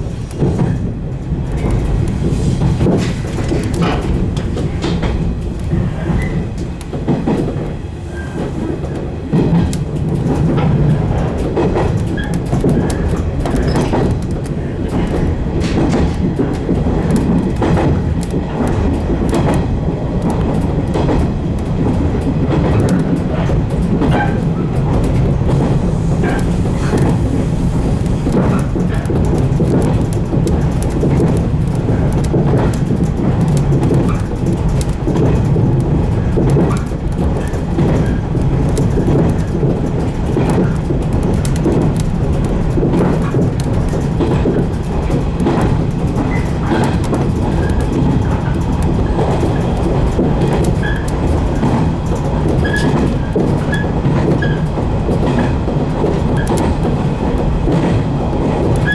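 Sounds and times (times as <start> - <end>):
train running rumble: 0.0 - 58.9
wheels clicking over rail joints: 0.0 - 58.9.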